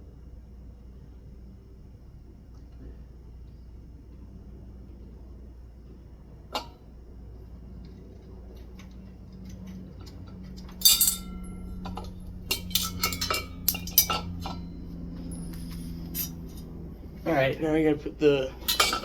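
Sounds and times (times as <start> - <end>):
low steady hum: 0.0 - 19.0
small metal parts clinking: 10.0 - 16.6, 18.6 - 19.0.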